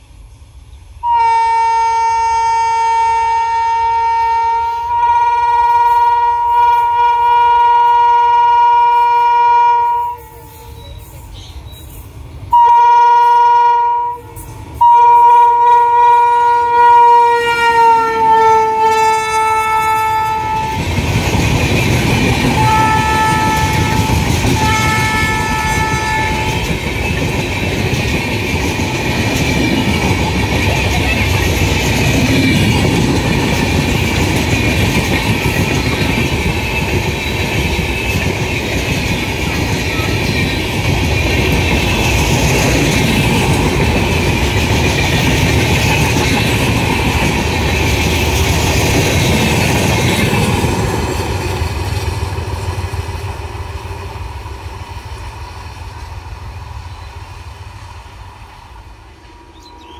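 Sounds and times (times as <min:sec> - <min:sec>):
locomotive horn: 0:01.0 - 0:10.9, 0:12.5 - 0:20.8, 0:22.5 - 0:26.7
train wheels clattering on rails: 0:17.2 - 0:58.0.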